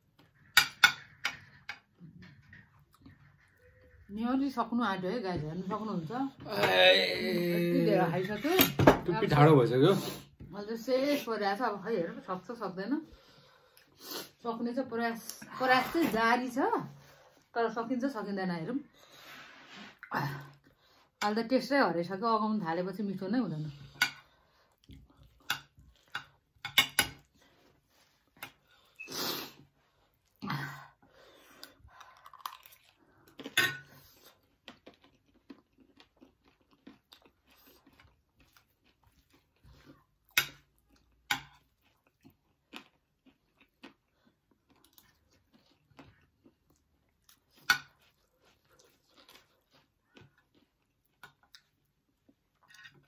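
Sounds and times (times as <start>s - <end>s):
people chewing crunchy snack: 27.2s - 53.0s.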